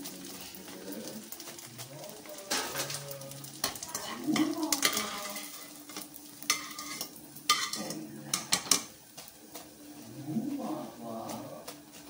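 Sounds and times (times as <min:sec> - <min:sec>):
food sizzling in hot oil: 0:00.0 - 0:12.0
utensil clinking against pan: 0:03.6 - 0:08.9.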